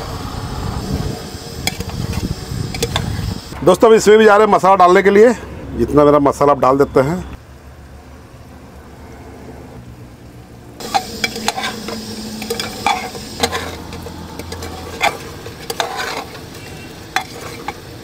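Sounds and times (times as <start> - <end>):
meat frying and sizzling: 0.0 - 3.6, 10.7 - 18.0
steel ladle scraping metal pot: 1.6 - 3.2, 10.8 - 18.0
low hum: 10.8 - 18.0.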